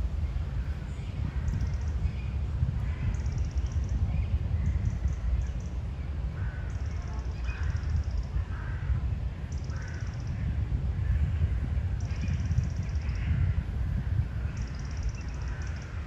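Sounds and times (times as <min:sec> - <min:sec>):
wind rumbling on microphone: 0:00.0 - 0:16.0
birds calling: 0:14.3 - 0:16.0.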